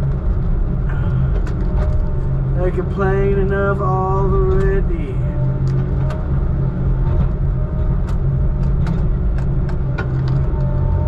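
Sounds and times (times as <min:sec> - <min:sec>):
diesel truck engine running: 0:00.0 - 0:11.0
sharp clicks and rattles: 0:00.1 - 0:02.2.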